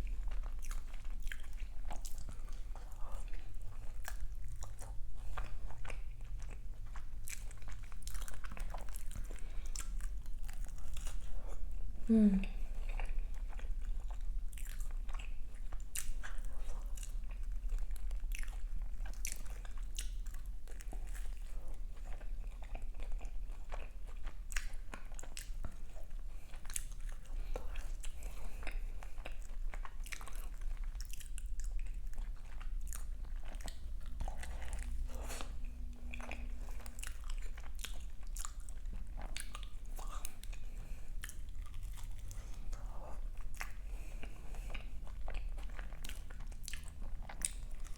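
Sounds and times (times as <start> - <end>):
steady low hum: 31.6 - 47.9.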